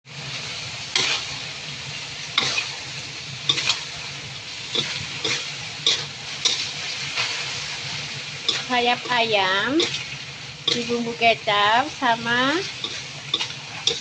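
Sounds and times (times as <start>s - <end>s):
chicken wings sizzling in frying pan: 0.0s - 14.0s
spatula knocking and scraping pan: 4.7s - 7.4s, 12.0s - 14.0s.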